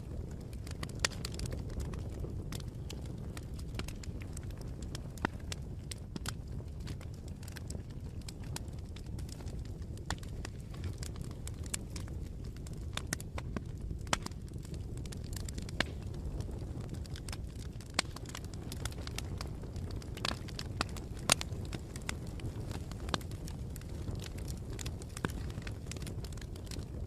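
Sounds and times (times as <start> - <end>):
burning wood crackling and popping: 0.0 - 27.0
campfire low rumble: 0.0 - 27.0.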